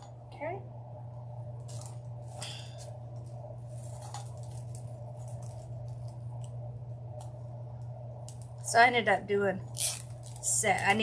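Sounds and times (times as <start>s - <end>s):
steady low hum: 0.0s - 11.0s
mesh and ribbon rustling: 1.6s - 7.5s, 9.6s - 11.0s.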